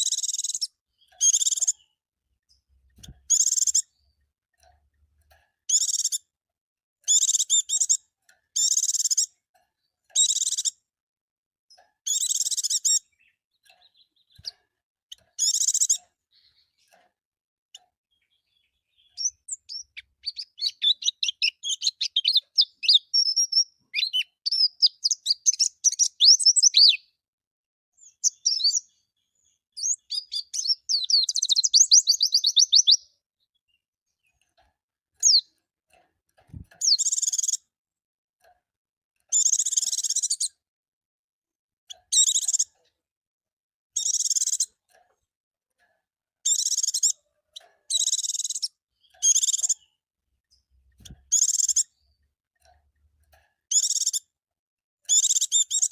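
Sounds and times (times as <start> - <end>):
bird twittering: 0.0 - 1.8, 3.3 - 3.9, 18.2 - 27.1, 28.0 - 29.0, 29.8 - 33.1, 35.2 - 35.5, 36.8 - 37.6, 47.9 - 49.8, 51.0 - 51.9, 53.7 - 54.2, 55.1 - 55.9
bird trill: 0.0 - 2.0, 3.0 - 4.1, 5.7 - 6.3, 7.1 - 9.4, 10.1 - 10.8, 12.0 - 14.5, 15.1 - 16.9, 18.1 - 27.2, 28.0 - 33.5, 35.2 - 35.5, 36.5 - 37.7, 39.3 - 40.6, 41.9 - 42.8, 44.0 - 44.8, 46.4 - 50.0, 50.9 - 52.2, 53.7 - 54.3, 55.1 - 55.9.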